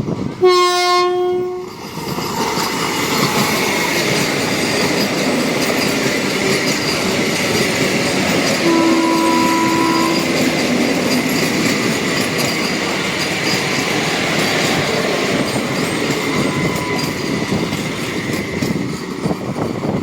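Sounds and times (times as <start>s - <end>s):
train wheels rumbling on rails: 0.0s - 20.0s
train horn: 0.4s - 1.8s, 8.6s - 10.7s.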